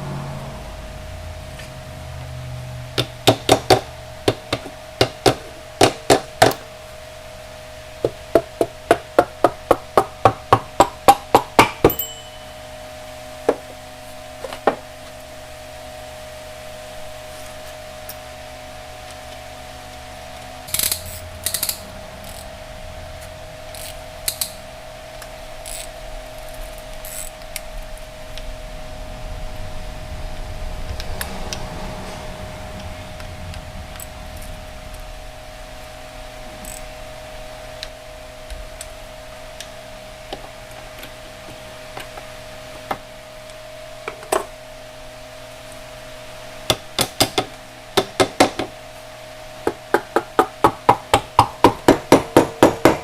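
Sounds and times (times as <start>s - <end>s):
steady hum: 0.0s - 53.0s.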